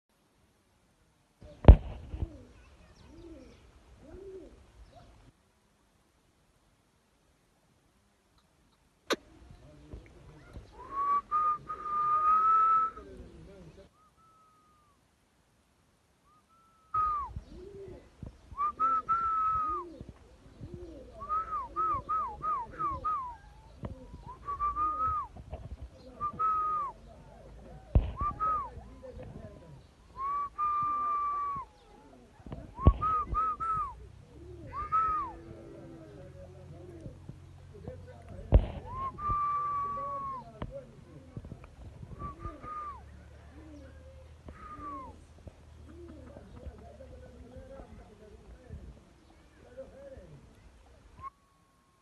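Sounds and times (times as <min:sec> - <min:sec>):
pigeon cooing: 0:02.0 - 0:05.2, 0:10.3 - 0:14.9, 0:16.5 - 0:37.5, 0:38.3 - 0:48.5
birds whistling: 0:13.9 - 0:14.9, 0:42.1 - 0:45.3.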